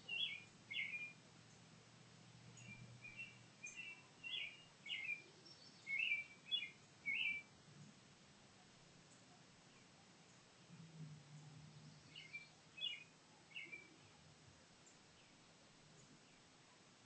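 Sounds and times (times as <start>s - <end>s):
bird chirping: 0.0s - 1.6s, 2.5s - 7.5s, 11.3s - 14.2s.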